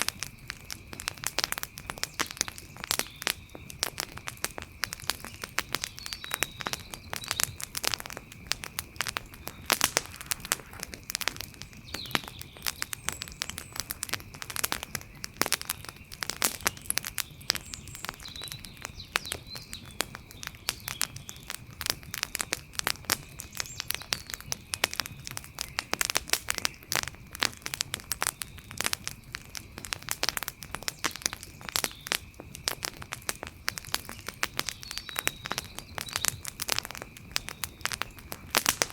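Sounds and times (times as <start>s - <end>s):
campfire crackling and popping: 0.0s - 38.9s
faint chirps: 4.9s - 21.5s.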